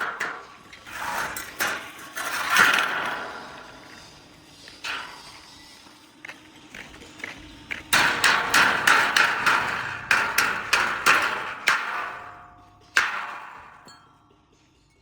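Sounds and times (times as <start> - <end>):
hammer striking steel: 7.9 - 14.2.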